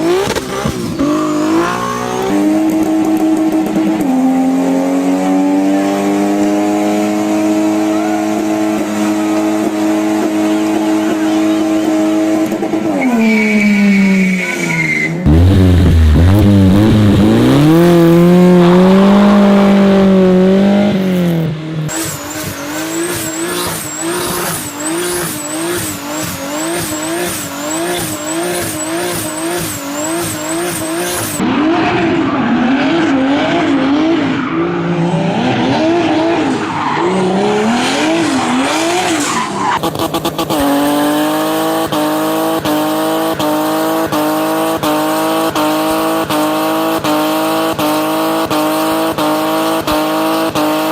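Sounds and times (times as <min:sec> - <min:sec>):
car engine revving high: 0:00.0 - 0:13.2, 0:14.6 - 0:50.9
tyres squealing: 0:21.9 - 0:31.4.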